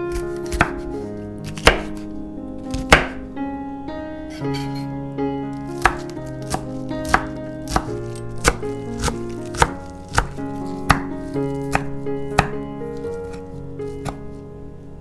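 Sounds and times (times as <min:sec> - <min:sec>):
background music: 0:00.0 - 0:15.0
knife chopping herbs on wooden board: 0:00.1 - 0:02.0, 0:02.7 - 0:03.2, 0:05.8 - 0:14.2.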